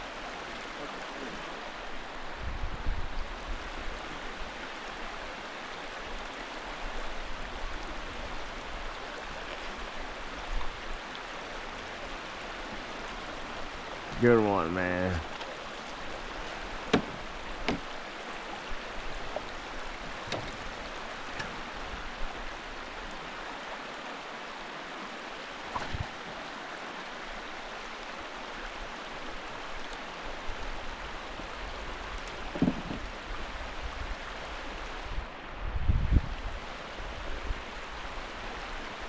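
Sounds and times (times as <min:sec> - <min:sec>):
flowing river water: 0:00.0 - 0:39.0
short knocks and clicks: 0:16.9 - 0:17.9, 0:32.5 - 0:33.1.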